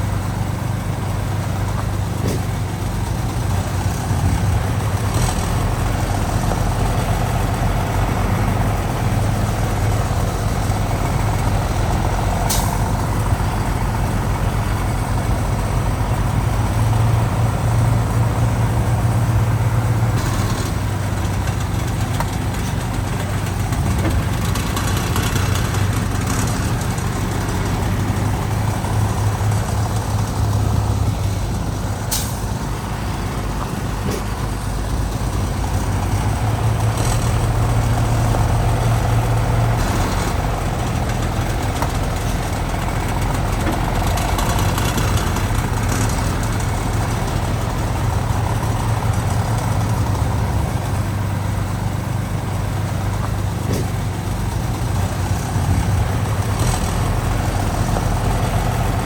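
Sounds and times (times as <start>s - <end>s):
heavy diesel engines rumbling: 0.0s - 59.0s.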